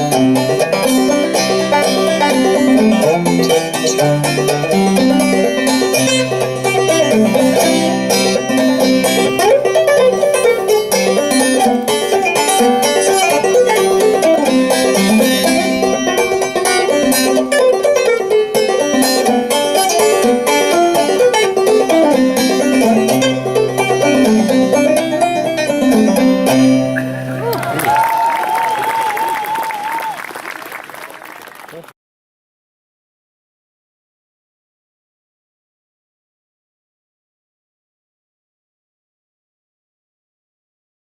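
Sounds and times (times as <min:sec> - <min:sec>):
banjo playing: 0:00.0 - 0:27.5.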